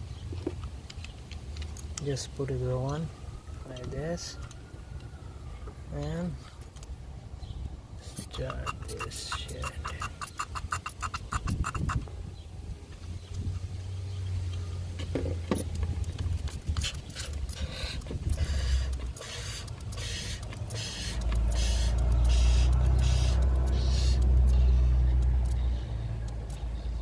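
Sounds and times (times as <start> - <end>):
low motor hum: 9.9 - 27.0
fluid slurping and hissing: 16.4 - 24.6.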